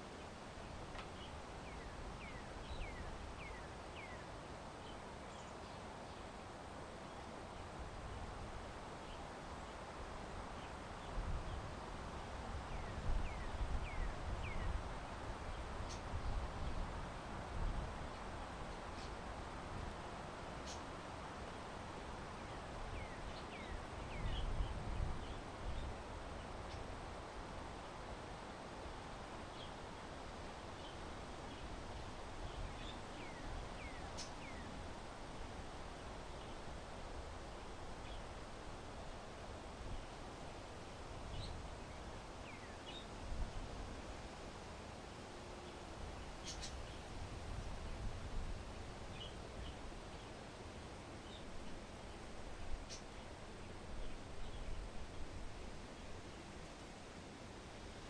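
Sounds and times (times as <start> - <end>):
small birds chirping: 0.6 - 6.4, 12.6 - 14.8, 15.4 - 16.8, 20.0 - 20.9, 22.4 - 27.0, 32.4 - 34.8, 41.2 - 43.6, 45.6 - 47.1, 49.1 - 50.4, 51.2 - 54.8
wind noise on microphone: 10.2 - 21.4, 22.3 - 44.4, 46.0 - 50.2
bird chirping faintly: 15.5 - 16.8, 20.6 - 20.9, 32.5 - 34.8, 45.6 - 47.0, 51.2 - 53.4.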